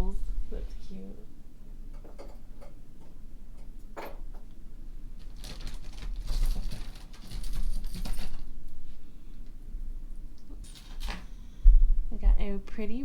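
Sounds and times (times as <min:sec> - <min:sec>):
low steady hum: 0:00.0 - 0:13.0
brooches rustling and clattering: 0:01.9 - 0:11.5.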